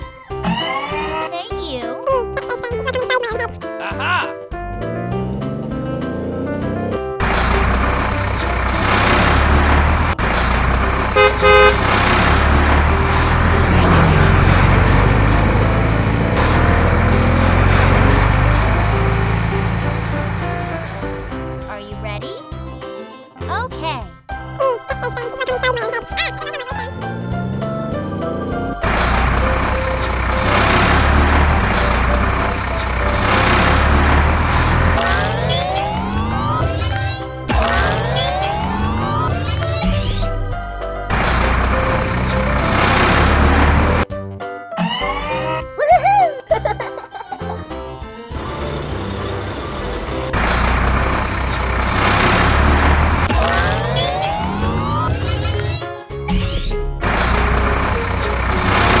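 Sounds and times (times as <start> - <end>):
children's music tune: 0.0 - 59.0
cartoon truck engine rumble: 4.0 - 22.8, 25.0 - 44.1, 44.7 - 59.0
horn toots: 7.2 - 21.4.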